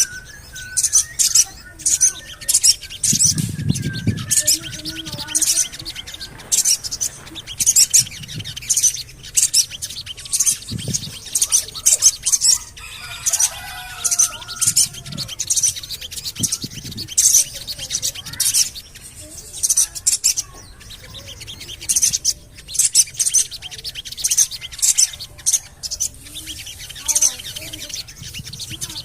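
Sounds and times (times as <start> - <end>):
bird chirping: 0.0 - 29.0
soft bird warble: 0.0 - 29.0.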